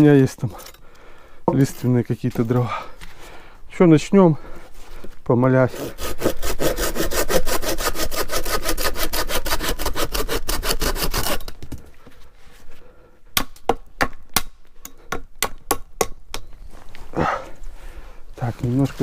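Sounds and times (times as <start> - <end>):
hand saw cutting log: 5.7 - 11.5.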